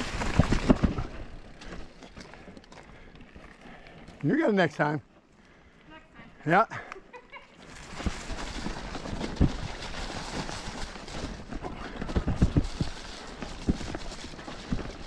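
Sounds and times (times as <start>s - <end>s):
bike knocks and rattles: 0.0s - 2.8s, 7.9s - 15.0s
tyre and wind noise: 0.0s - 3.6s, 7.6s - 15.0s.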